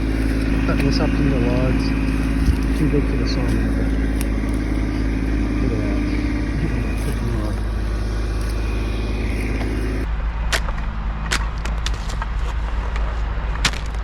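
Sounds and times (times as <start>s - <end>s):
chainsaw idling: 0.0s - 10.1s
sharp knocks or cracks: 13.6s - 14.0s.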